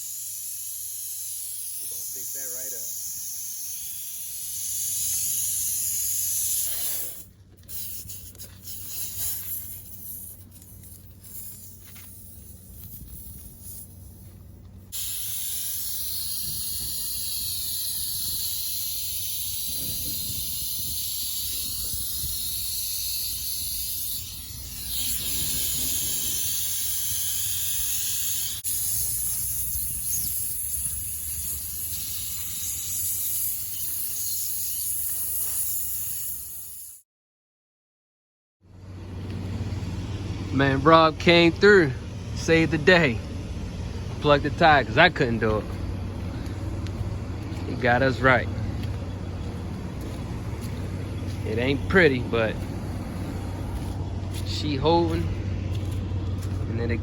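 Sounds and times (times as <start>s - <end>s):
air hissing from tire: 0.0s - 37.0s.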